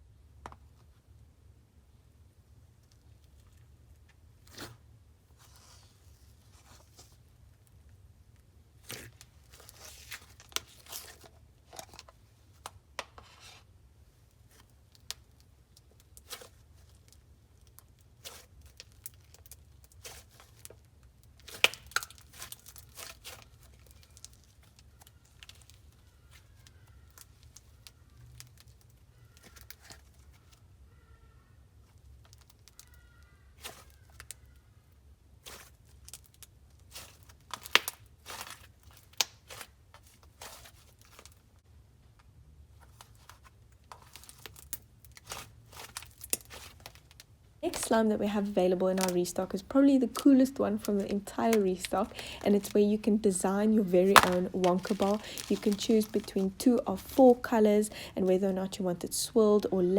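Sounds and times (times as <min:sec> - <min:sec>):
sticky slime crackles and pops: 0:14.5 - 0:30.6, 0:31.8 - 0:34.6, 0:35.4 - 0:41.4, 0:43.0 - 0:48.0, 0:48.8 - 0:57.5.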